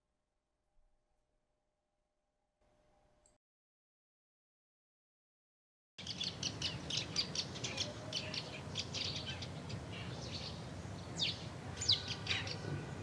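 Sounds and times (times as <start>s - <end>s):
birds chirping: 6.0s - 13.0s.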